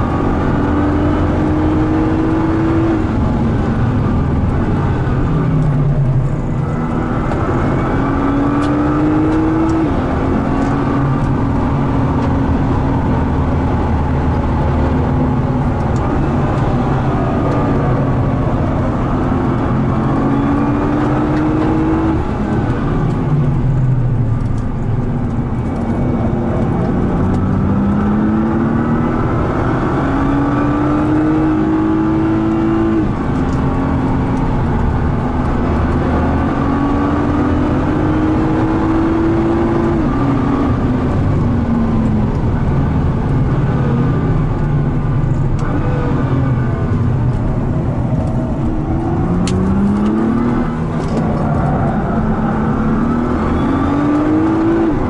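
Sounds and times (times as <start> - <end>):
car engine accelerating: 0.0 - 55.0
road and tyre noise: 0.0 - 55.0.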